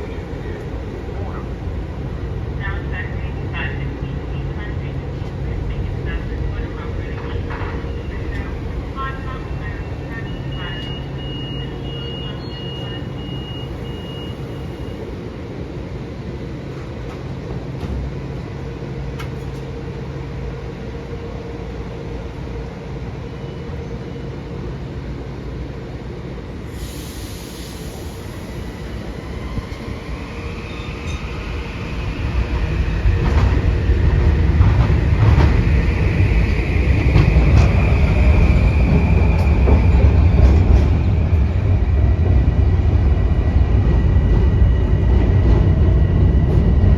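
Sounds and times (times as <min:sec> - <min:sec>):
train wheels rumbling on rail: 0:00.0 - 0:46.9
air hiss: 0:26.6 - 0:29.6.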